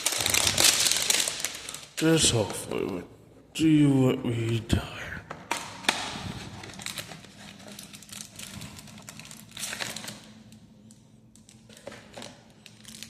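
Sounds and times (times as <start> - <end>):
wrapper crinkling: 0.0 - 2.9, 5.6 - 13.0.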